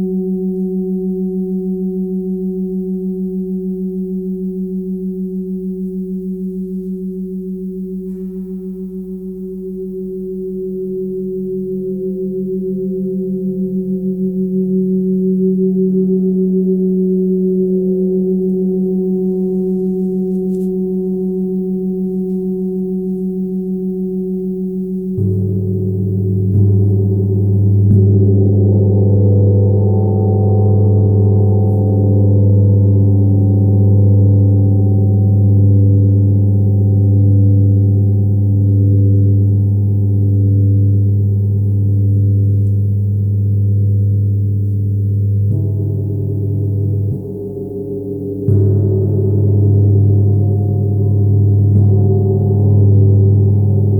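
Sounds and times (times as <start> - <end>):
gong ringing deep hum: 24.6 - 53.9
gong being struck: 25.1 - 34.8, 43.3 - 53.9.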